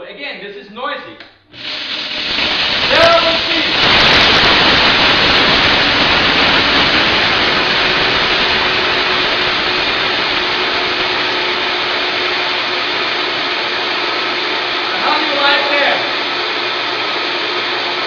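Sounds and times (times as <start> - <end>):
blender whirring: 1.4 - 18.0.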